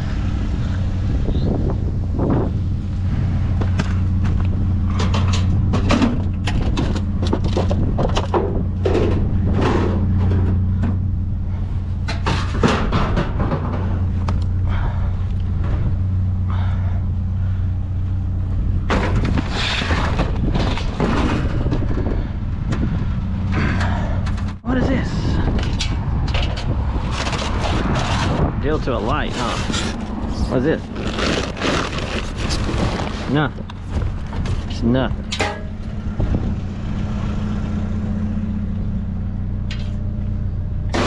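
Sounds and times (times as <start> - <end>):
vehicle engine idling: 0.0 - 26.8, 29.7 - 41.0
knocks and clatter: 3.5 - 11.2, 12.0 - 16.1, 18.8 - 24.6, 31.0 - 36.6.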